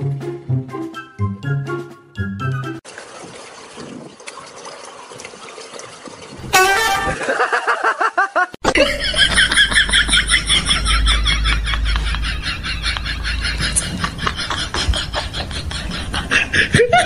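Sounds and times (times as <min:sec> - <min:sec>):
wavering horn-like call: 0:06.5 - 0:07.2.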